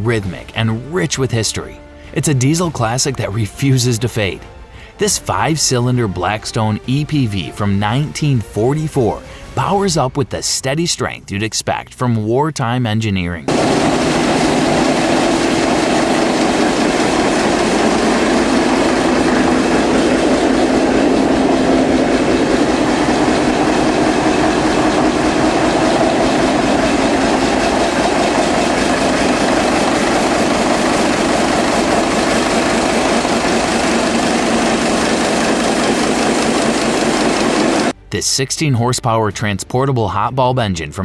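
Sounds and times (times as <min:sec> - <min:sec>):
diesel engine running: 0:13.5 - 0:37.9.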